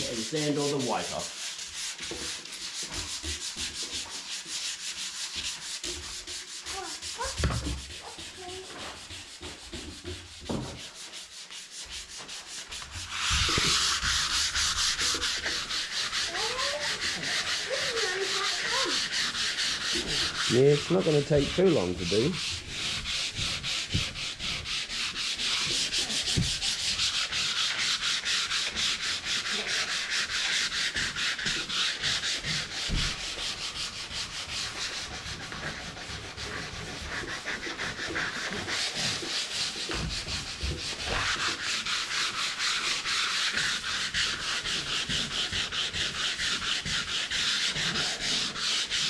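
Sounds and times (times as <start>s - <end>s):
sandpaper scratching on wood: 0.0s - 49.0s.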